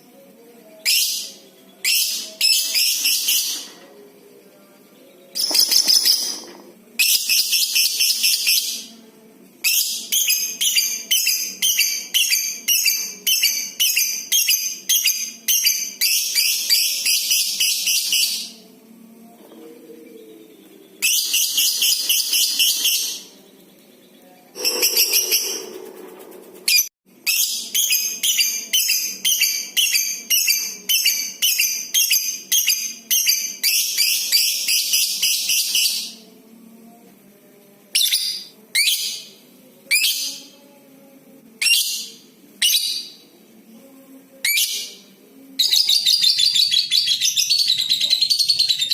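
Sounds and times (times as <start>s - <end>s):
lovebird shrill chattering: 24.6s - 25.8s.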